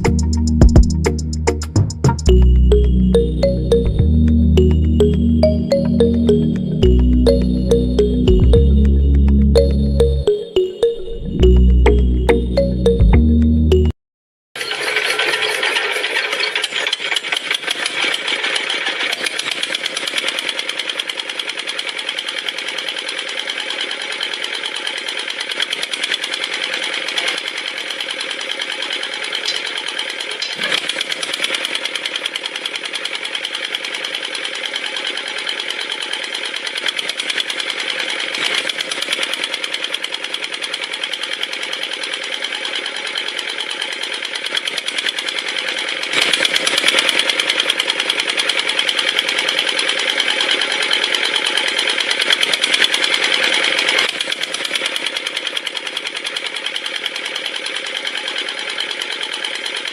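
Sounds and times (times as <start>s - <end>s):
model engine pump clattering: 14.6s - 59.9s.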